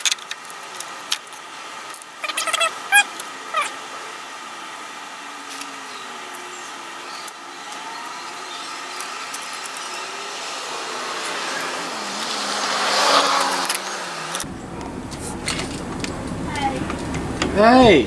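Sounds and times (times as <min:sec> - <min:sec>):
car approaching on road: 0:11.0 - 0:18.0.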